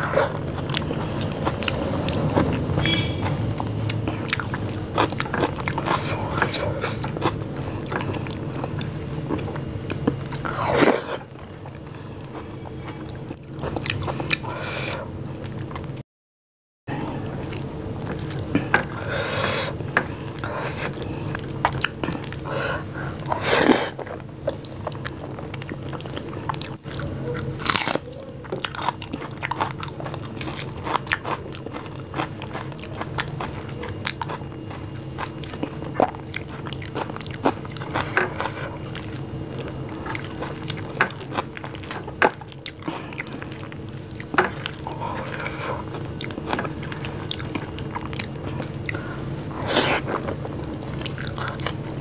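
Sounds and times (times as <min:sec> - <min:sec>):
chewing and mouth clicks: 0:00.0 - 0:14.5, 0:17.4 - 0:22.5, 0:23.1 - 0:52.0
crunchy bites: 0:24.9 - 0:52.0.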